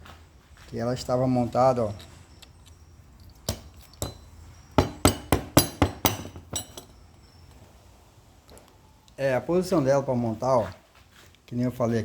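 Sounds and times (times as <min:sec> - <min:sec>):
metal tools clinking: 0:01.9 - 0:07.4.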